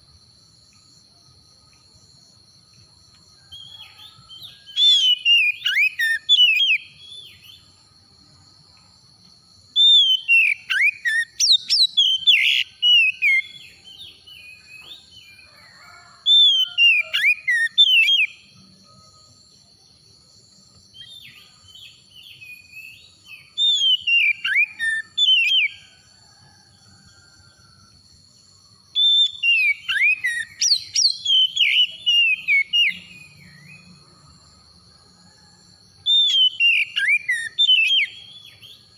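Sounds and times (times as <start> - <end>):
bird singing whistled phrases: 3.6 - 7.6, 9.8 - 14.8, 16.4 - 18.4, 22.2 - 25.8, 29.0 - 33.7, 36.1 - 38.9.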